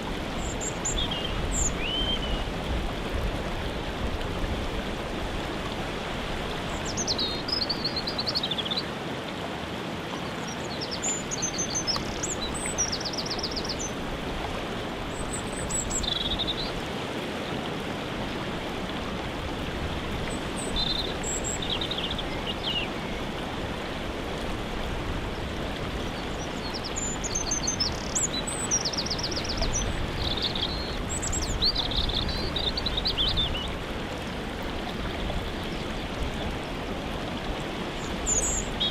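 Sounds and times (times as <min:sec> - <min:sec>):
songbirds singing: 0:00.0 - 0:02.6, 0:06.4 - 0:08.9, 0:10.2 - 0:14.0, 0:15.0 - 0:16.8, 0:20.2 - 0:23.4, 0:25.3 - 0:33.9, 0:34.7 - 0:38.9
waterfall rushing: 0:00.0 - 0:38.9.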